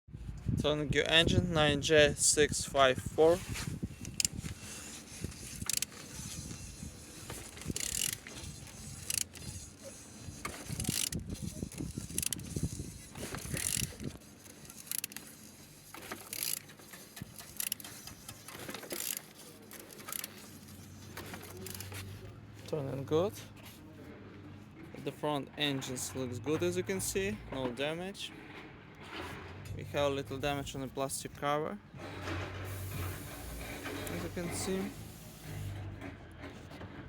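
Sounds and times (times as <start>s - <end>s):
engine crankshaft clicking and clattering: 5.3s - 22.1s, 32.0s - 37.0s.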